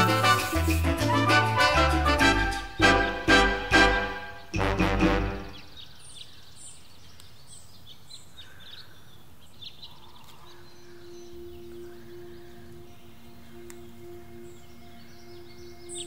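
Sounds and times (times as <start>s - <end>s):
small birds chirping: 5.3s - 16.0s.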